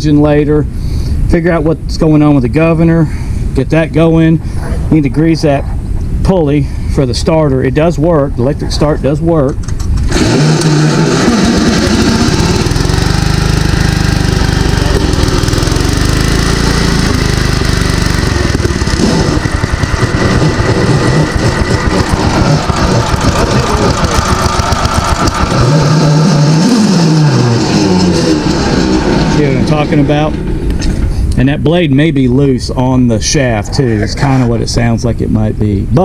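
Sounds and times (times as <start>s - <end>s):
mower drive grinding roughly: 9.5s - 31.2s
garden tractor engine running: 9.6s - 30.3s.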